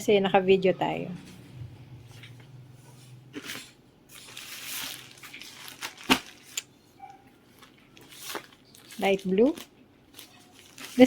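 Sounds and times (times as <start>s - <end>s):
packaging crinkling: 3.4s - 6.8s, 7.4s - 11.0s.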